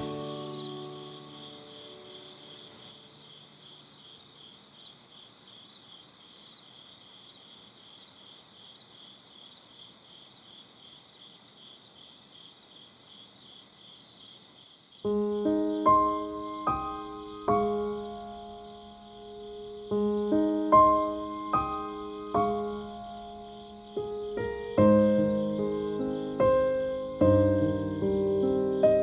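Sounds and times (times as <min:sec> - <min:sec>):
piano notes: 0:00.0 - 0:03.4, 0:15.1 - 0:29.0
crickets chirping: 0:00.0 - 0:29.0.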